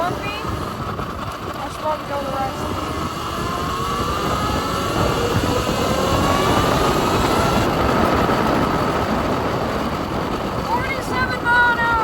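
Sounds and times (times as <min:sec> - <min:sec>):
electric motor whine: 0:00.0 - 0:10.6
wind rumble on microphone: 0:00.0 - 0:12.0.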